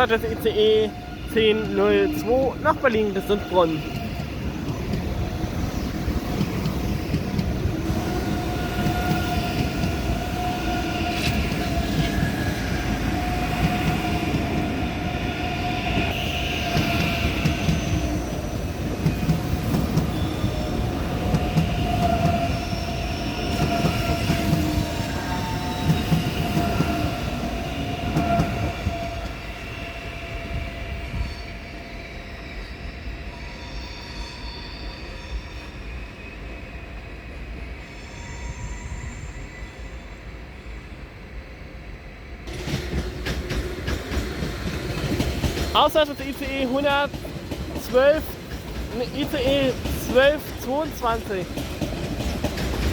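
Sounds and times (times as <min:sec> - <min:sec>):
wheels rumbling on rail: 0:00.0 - 0:32.0, 0:42.4 - 0:52.9
train wheels squealing: 0:00.0 - 0:42.3.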